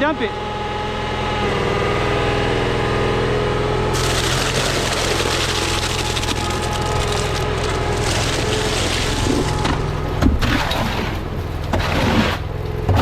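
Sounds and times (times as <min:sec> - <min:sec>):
truck engine running: 0:00.0 - 0:13.0
concrete pouring rush: 0:03.8 - 0:12.8.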